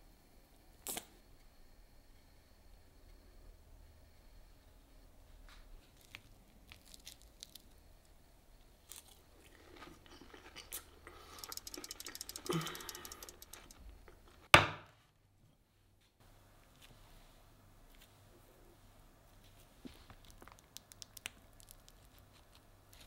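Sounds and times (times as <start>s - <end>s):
crunchy chewing: 5.8s - 13.8s.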